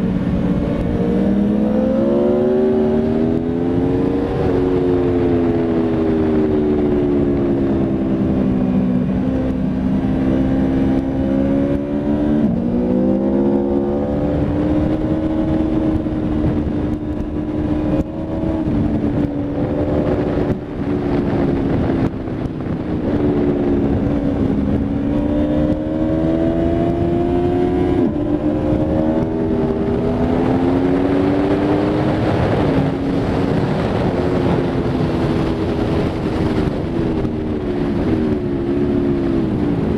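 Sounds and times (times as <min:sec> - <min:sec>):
motorcycle engine revving hard: 0:09.1 - 0:39.9.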